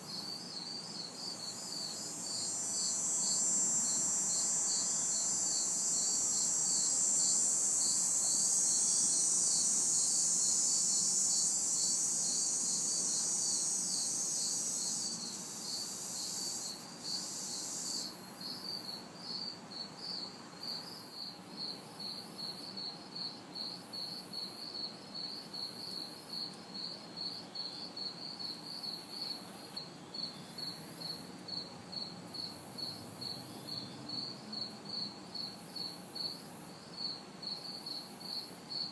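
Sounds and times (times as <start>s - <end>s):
cicada buzz: 0.0s - 38.9s
cricket chirping: 0.0s - 38.9s.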